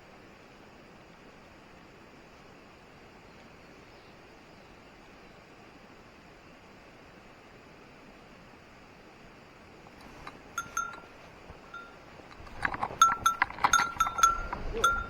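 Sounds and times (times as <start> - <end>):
rustling: 9.9 - 15.0
small metal bell jingling: 9.9 - 15.0.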